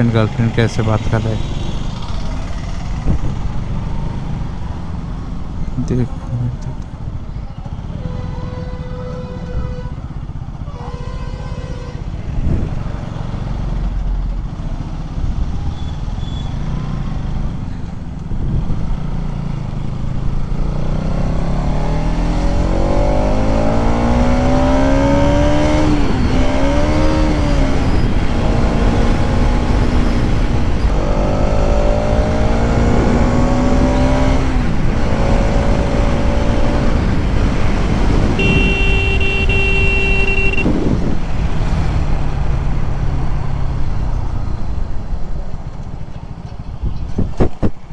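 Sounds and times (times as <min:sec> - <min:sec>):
motorcycle engine accelerating: 0:00.0 - 0:08.1, 0:12.2 - 0:46.0
wind and road noise: 0:00.0 - 0:47.9
horn beeping: 0:38.3 - 0:41.1.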